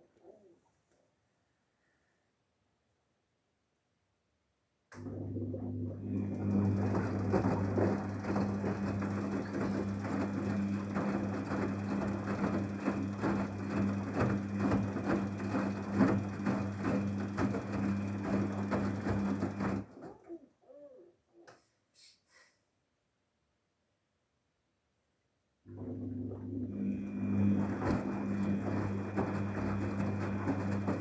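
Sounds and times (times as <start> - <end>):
washing machine hum: 5.0 - 21.0, 25.7 - 31.0.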